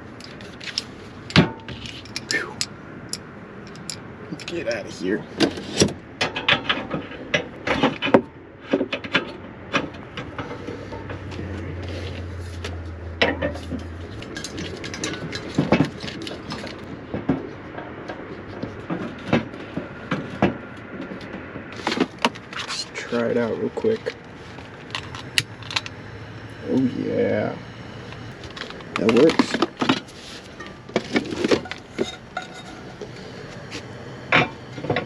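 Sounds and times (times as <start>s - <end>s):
low steady hum: 0.0s - 35.0s
clatter of pots and utensils: 6.2s - 8.2s, 13.2s - 17.9s, 30.6s - 33.0s.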